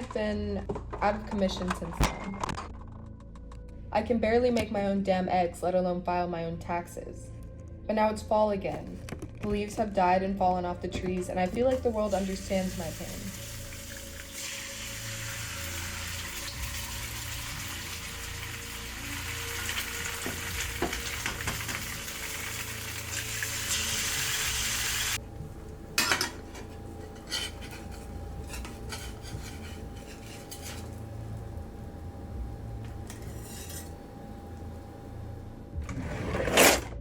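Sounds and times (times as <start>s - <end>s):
food sizzling in a frying pan: 12.1s - 25.2s
cutlery clinking against dishes: 26.0s - 31.0s.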